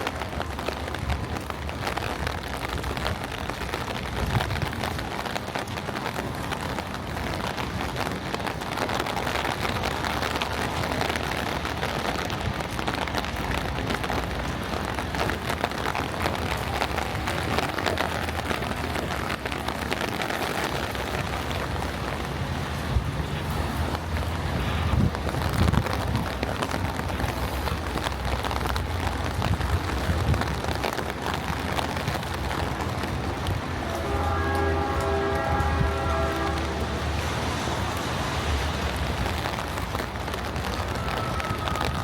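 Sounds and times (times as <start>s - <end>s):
rain patter: 0.0s - 42.0s
wind rumble on microphone: 0.0s - 42.0s.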